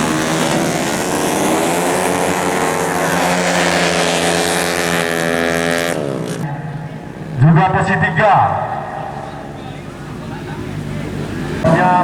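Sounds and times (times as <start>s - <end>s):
scooter engine revving: 0.0s - 7.4s.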